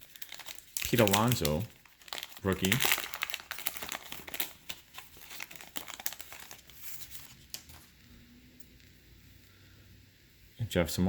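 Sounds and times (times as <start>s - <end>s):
wrapper crinkling: 0.0s - 8.1s.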